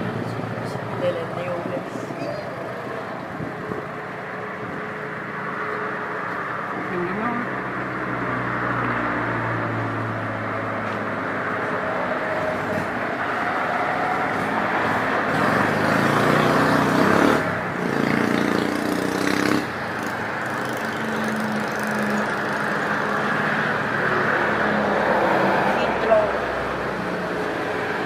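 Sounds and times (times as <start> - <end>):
road traffic passing: 0.0 - 28.0.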